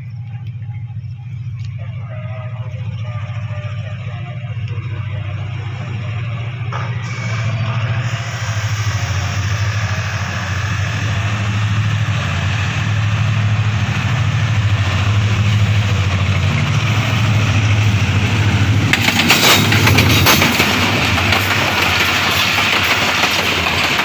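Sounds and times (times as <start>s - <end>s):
locomotive engine droning: 0.0s - 24.0s
train wheels clattering over rails: 6.1s - 24.0s.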